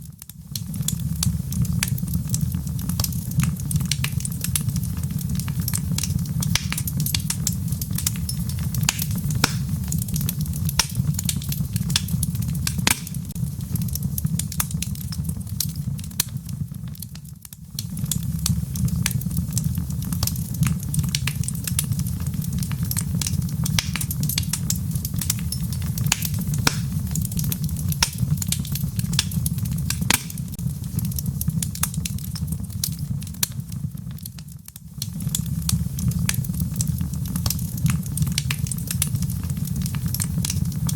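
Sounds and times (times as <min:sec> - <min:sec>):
wood fire crackling and popping: 0:00.0 - 0:40.9
light rain patter: 0:00.2 - 0:40.9.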